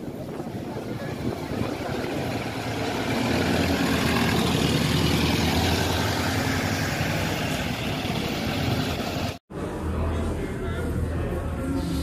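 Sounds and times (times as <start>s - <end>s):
vehicle running hum: 1.0s - 12.0s.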